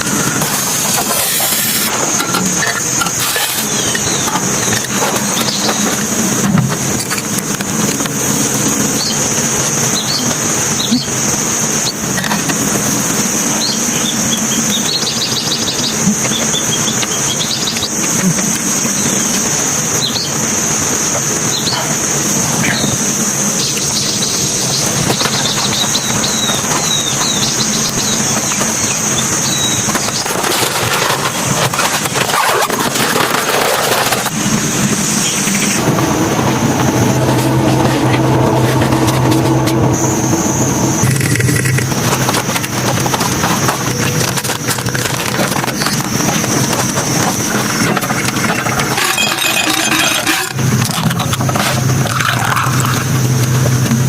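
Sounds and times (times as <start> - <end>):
birds chirping: 0.0 - 7.5, 8.2 - 30.5, 34.3 - 50.8
rush of noise: 0.0 - 54.0
low steady hum: 34.2 - 54.0
high-pitched insect buzz: 48.8 - 50.7.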